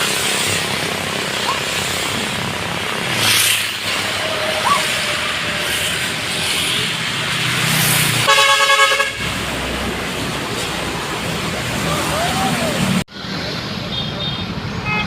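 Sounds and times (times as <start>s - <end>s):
road traffic rumble: 0.0s - 15.0s
truck horn blast: 8.2s - 9.5s.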